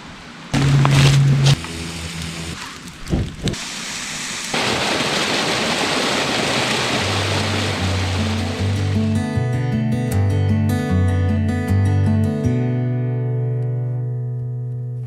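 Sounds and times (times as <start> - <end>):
running water: 0.6 - 9.2
low music notes: 7.6 - 15.0.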